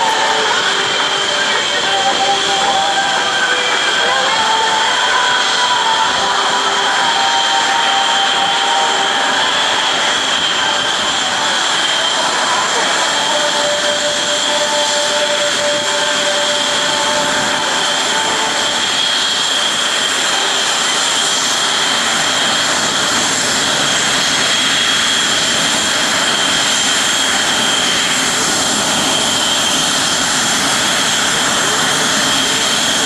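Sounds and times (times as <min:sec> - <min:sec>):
jet engines running: 0:00.0 - 0:33.0.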